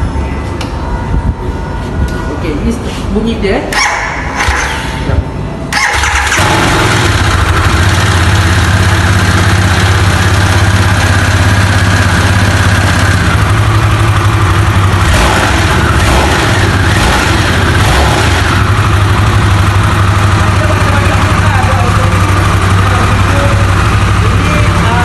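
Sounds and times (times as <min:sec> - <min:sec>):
motorcycle engine idling: 0:05.7 - 0:25.0.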